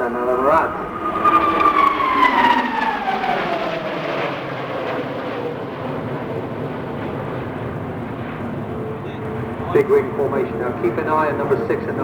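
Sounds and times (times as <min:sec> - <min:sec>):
jet aircraft flying past: 0:00.0 - 0:12.0
turbojet whine falling in pitch: 0:00.3 - 0:04.6.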